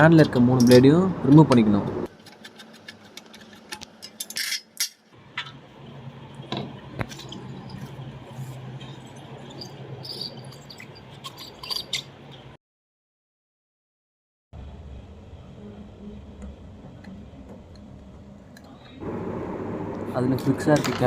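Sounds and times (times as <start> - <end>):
metal tools clinking and scraping: 8.8 - 12.1
low steady hum: 14.6 - 21.0.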